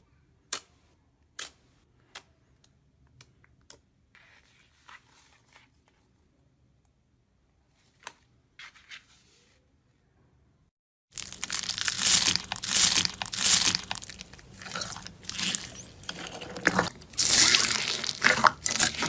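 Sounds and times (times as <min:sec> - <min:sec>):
loud crisp crunching: 0:11.1 - 0:19.0.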